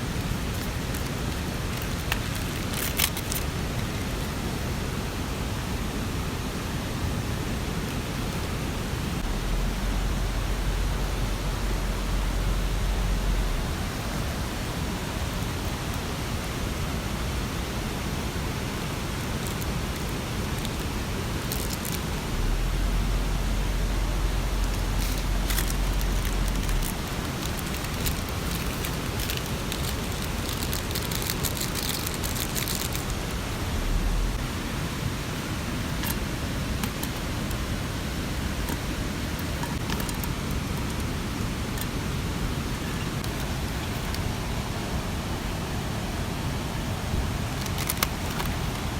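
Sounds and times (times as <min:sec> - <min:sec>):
rushing water: 0:00.0 - 0:48.9
steady rain hiss: 0:00.0 - 0:48.9
small sharp ticks: 0:00.1 - 0:04.1, 0:19.4 - 0:22.2, 0:24.6 - 0:33.4
low rumble: 0:09.2 - 0:15.0, 0:22.0 - 0:29.0, 0:32.9 - 0:34.8.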